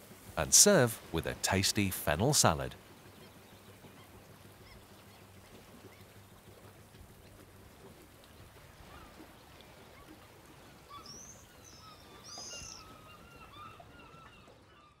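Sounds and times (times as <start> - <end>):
outdoor background hiss: 0.0 - 9.7
birds chirping: 10.8 - 14.9
high bird calls: 10.9 - 15.0.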